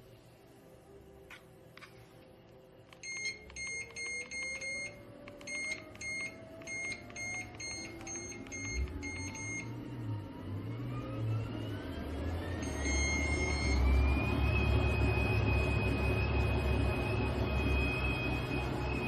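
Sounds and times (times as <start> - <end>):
low running hum: 0.0 - 19.0
treadmill control panel beeping: 2.9 - 9.8, 12.6 - 19.0
treadmill motor whine: 2.9 - 19.0.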